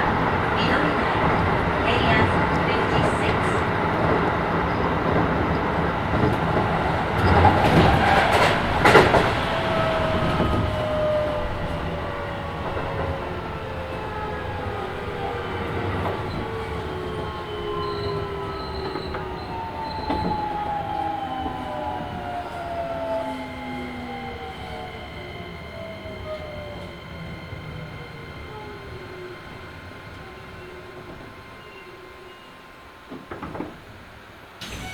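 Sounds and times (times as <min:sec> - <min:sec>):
train wheels rumbling on rails: 0:00.0 - 0:34.9
train motor whine: 0:34.6 - 0:34.9.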